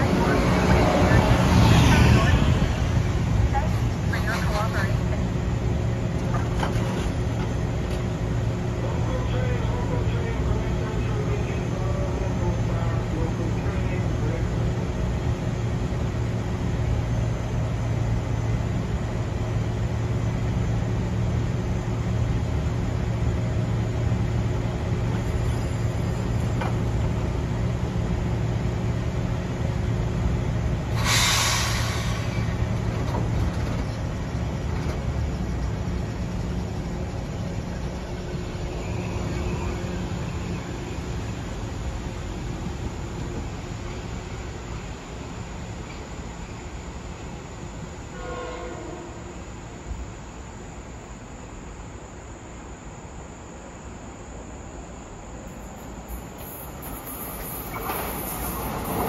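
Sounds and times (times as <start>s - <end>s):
train humming: 0.0s - 59.0s
air brake hiss: 30.9s - 32.6s, 56.1s - 58.8s.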